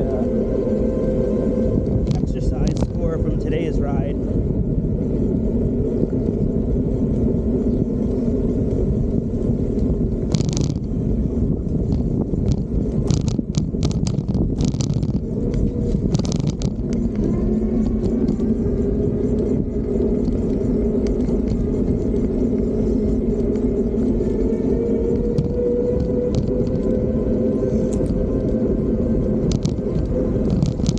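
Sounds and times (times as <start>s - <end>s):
electric bike rumble: 0.0s - 30.9s
sharp rattles and scrapes: 1.5s - 30.9s.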